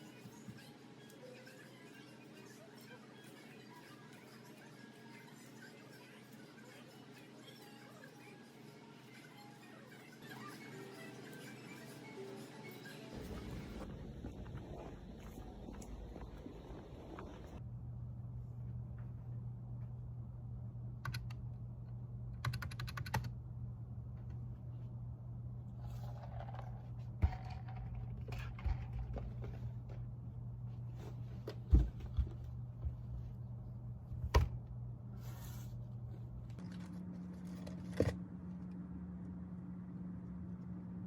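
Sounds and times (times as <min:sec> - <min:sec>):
steady low hum: 0:13.1 - 0:41.0
computer keyboard typing: 0:22.4 - 0:23.3.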